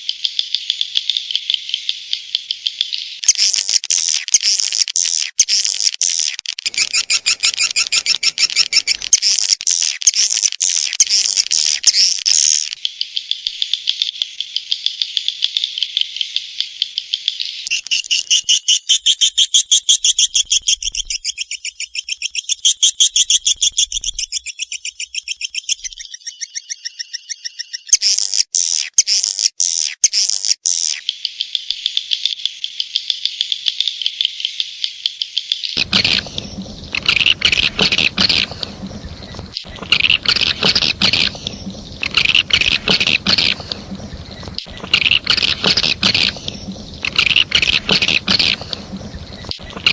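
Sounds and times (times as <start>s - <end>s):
swiftlet twittering chirps: 6.7s - 9.1s, 35.8s - 49.9s.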